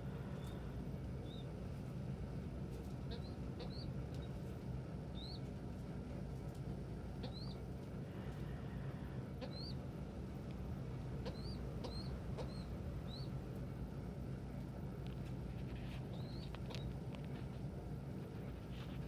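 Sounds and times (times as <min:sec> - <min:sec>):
young pigeon peeping: 0:00.2 - 0:01.6, 0:02.7 - 0:05.8, 0:06.4 - 0:13.7, 0:15.2 - 0:17.6.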